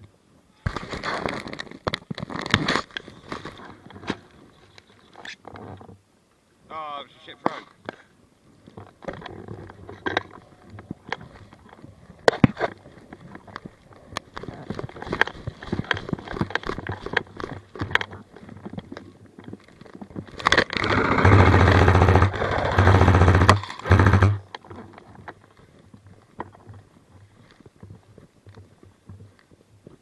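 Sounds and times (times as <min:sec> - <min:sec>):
electric gun firing full auto: 0:20.8 - 0:24.4.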